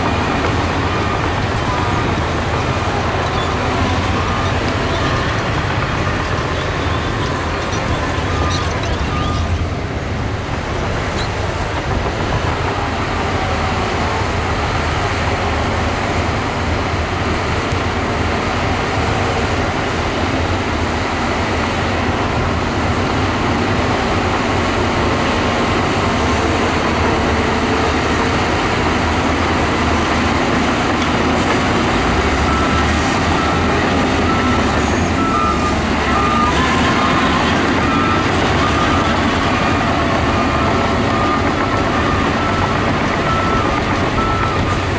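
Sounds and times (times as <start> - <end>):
heavy machinery diesel rumble: 0.0 - 44.9
reversing alarm beeping: 31.9 - 44.9.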